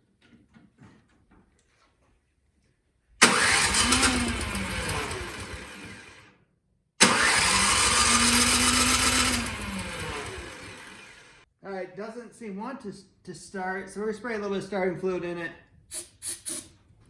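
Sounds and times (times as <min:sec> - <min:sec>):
electric starter cranking engine: 0:03.2 - 0:06.3, 0:07.0 - 0:11.4.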